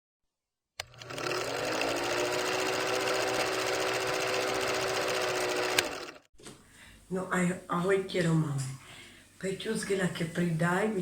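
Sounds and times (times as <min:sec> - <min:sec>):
motor click: 0:00.8 - 0:01.2, 0:05.6 - 0:06.2
small electric motor running: 0:00.8 - 0:06.3.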